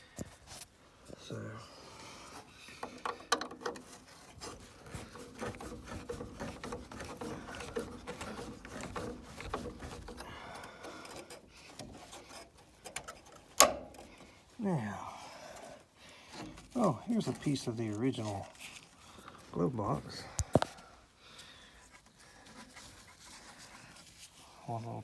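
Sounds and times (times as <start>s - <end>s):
tools clicking and scraping metal parts: 2.7s - 14.5s.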